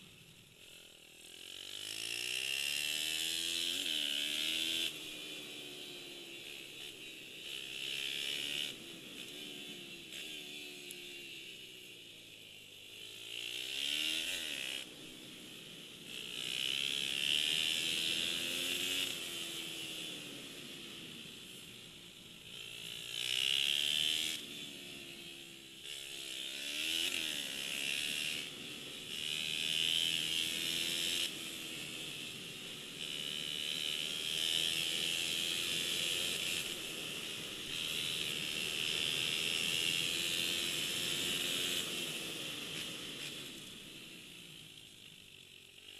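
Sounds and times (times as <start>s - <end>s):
pit bike engines revving: 25.3s - 43.7s.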